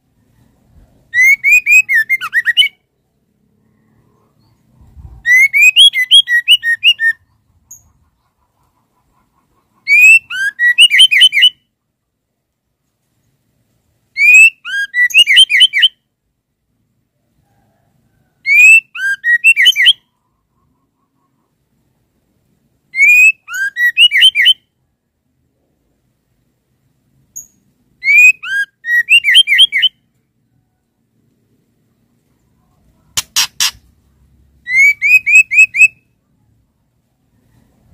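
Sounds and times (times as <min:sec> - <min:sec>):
bird whistling rising notes: 0:01.1 - 0:02.8, 0:05.2 - 0:07.3, 0:09.9 - 0:11.6, 0:28.0 - 0:30.0, 0:34.6 - 0:36.0.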